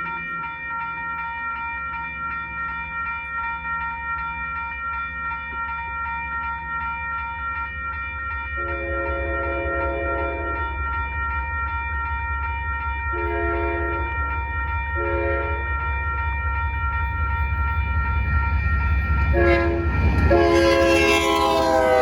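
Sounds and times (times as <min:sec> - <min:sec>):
railroad crossing bell ringing: 0:00.0 - 0:22.0
locomotive air horn: 0:08.6 - 0:10.5, 0:13.2 - 0:14.0, 0:15.0 - 0:15.5, 0:19.4 - 0:22.0
diesel locomotive rumble: 0:17.1 - 0:22.0.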